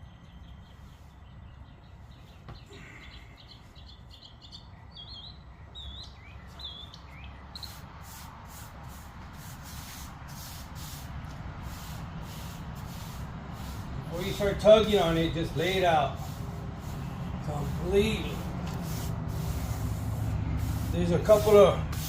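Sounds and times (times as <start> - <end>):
small birds chirping: 0.0 - 11.0, 11.7 - 22.0
short hissing strokes: 7.6 - 22.0.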